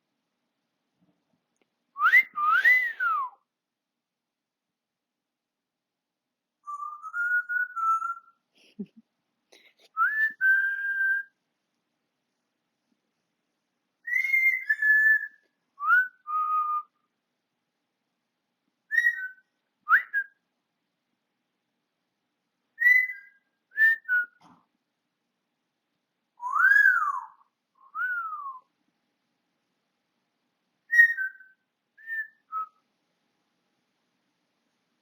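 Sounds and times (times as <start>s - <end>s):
parrot whistling: 2.0s - 3.3s, 6.7s - 8.3s, 14.1s - 16.9s, 18.9s - 20.3s, 22.8s - 24.3s, 26.4s - 28.6s, 30.9s - 32.7s.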